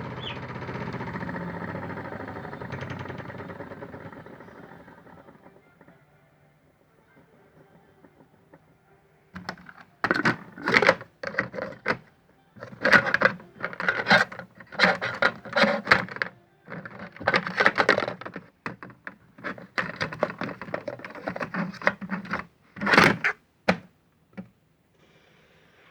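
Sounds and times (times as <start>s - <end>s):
toy washing machine rattling: 0.0s - 6.1s, 9.4s - 24.5s.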